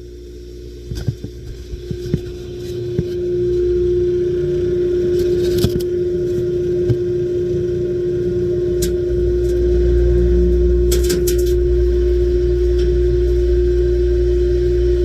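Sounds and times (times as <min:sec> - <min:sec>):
blast cabinet motor hum: 0:00.0 - 0:15.0
low rumble: 0:00.0 - 0:15.0.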